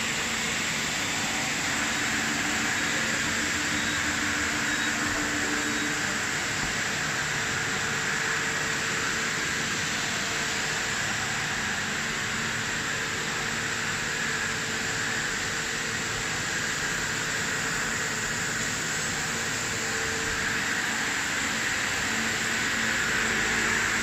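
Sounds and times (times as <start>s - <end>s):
machine hiss and hum: 0.0s - 24.0s.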